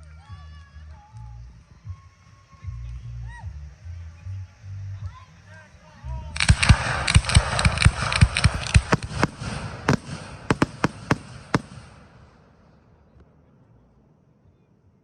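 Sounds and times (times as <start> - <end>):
fireworks crackling: 0.0 - 12.8
fireworks bangs: 6.3 - 13.0.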